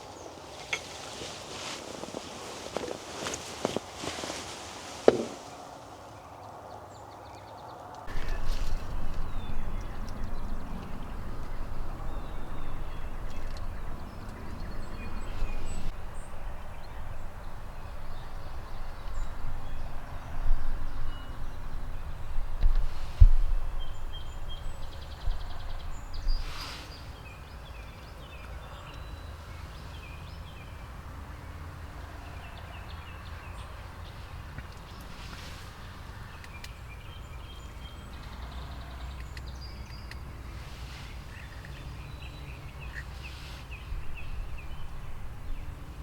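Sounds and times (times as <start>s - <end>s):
songbird chirps: 0.0s - 46.0s
low thumps: 5.0s - 5.5s.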